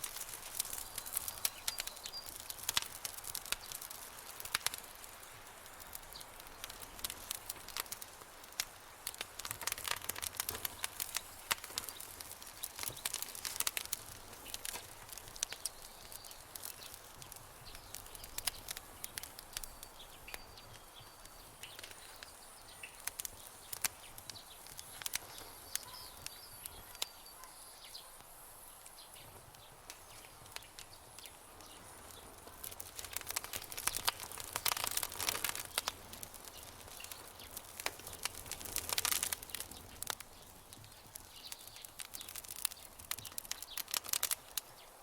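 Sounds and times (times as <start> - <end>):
campfire crackling and popping: 0.0 - 45.0
faint high thin calls: 25.2 - 28.2.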